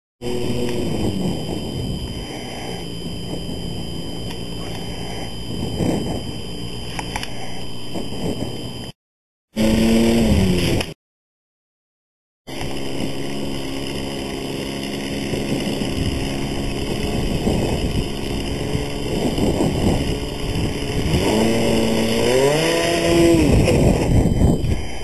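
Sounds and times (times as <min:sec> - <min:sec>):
model airplane engine buzzing: 0:00.2 - 0:09.0, 0:09.6 - 0:11.0, 0:12.5 - 0:25.0
wind noise on microphone: 0:00.2 - 0:09.0, 0:12.5 - 0:25.0.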